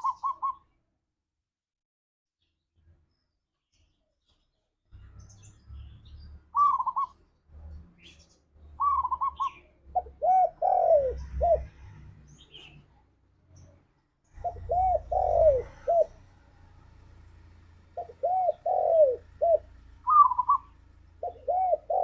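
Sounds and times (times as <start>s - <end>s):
dove cooing: 0.0s - 0.7s, 6.6s - 7.2s, 8.8s - 12.8s, 14.3s - 17.2s, 17.8s - 22.0s.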